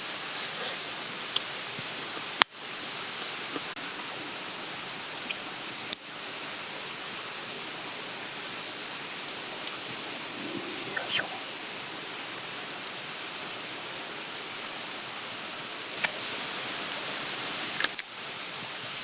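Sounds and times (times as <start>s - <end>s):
burning wood popping: 0.0s - 4.1s, 15.1s - 18.1s
campfire hissing and crackling: 0.0s - 19.0s.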